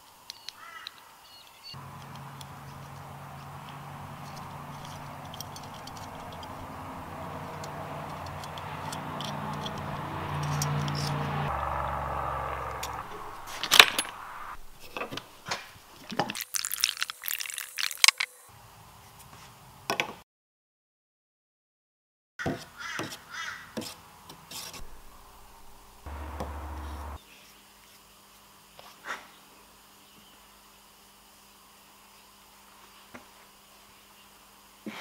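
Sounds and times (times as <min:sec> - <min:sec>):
metal clamp parts clinking: 0:04.3 - 0:06.6, 0:13.6 - 0:15.2.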